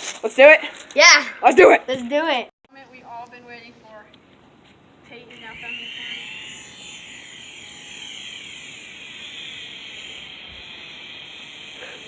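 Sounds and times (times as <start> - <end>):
remote-control helicopter whine: 5.2 - 12.0.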